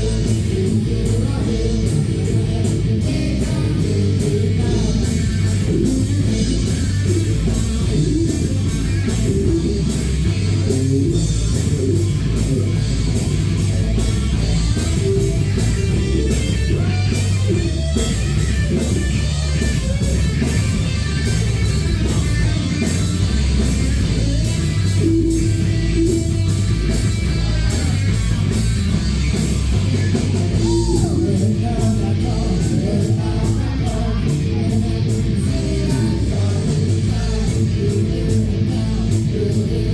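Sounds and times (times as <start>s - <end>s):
person singing: 0.0s - 12.7s, 30.1s - 39.9s
live rock band playing: 0.0s - 39.9s.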